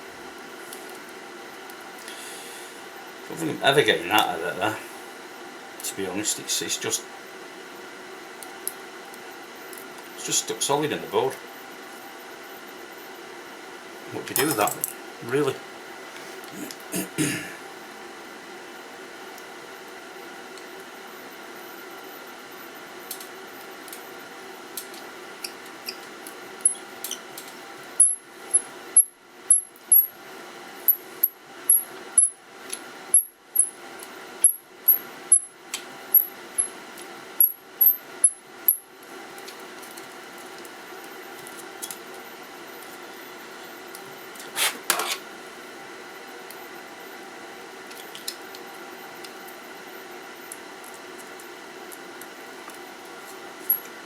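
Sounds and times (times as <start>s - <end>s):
brief scrape: 44.5s - 45.2s.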